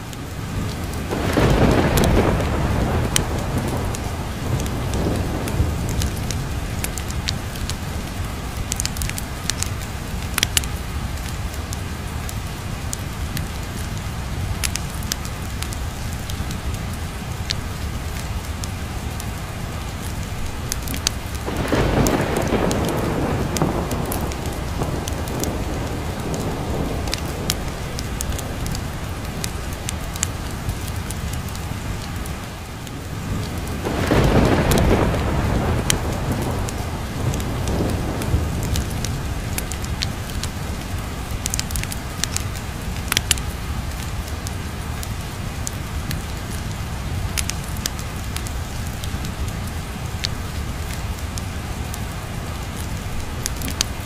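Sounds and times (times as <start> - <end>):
sharp crackles and clicks: 0.0 - 52.1, 52.7 - 54.0
heavy rain: 0.0 - 54.0
thunder rolling: 0.8 - 8.1, 20.6 - 31.0, 33.0 - 42.4.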